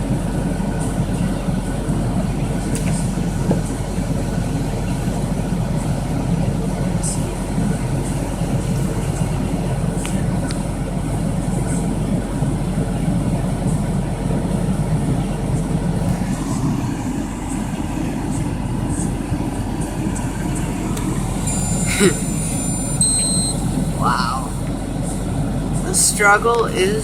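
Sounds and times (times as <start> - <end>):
vehicle engine idling: 0.0 - 27.0.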